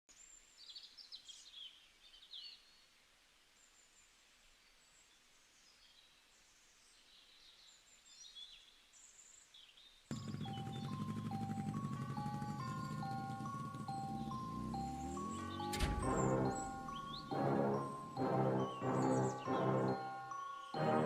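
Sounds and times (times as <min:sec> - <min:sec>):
birds chirping and trilling: 0:07.2 - 0:21.0.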